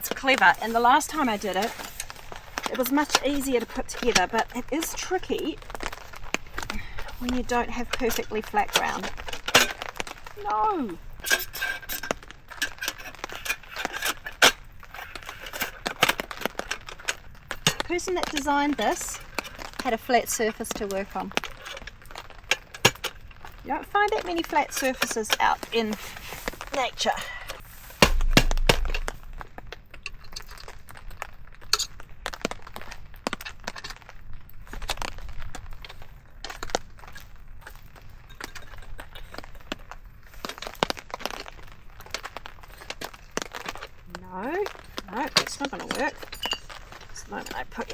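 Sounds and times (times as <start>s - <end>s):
camp table parts clinking and rattling: 0.0s - 30.8s, 31.6s - 34.1s, 34.7s - 47.9s
sharp knock: 28.0s - 29.6s.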